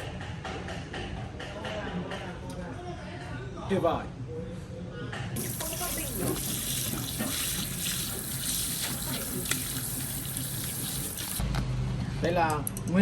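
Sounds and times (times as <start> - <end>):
running water: 5.4 - 11.4.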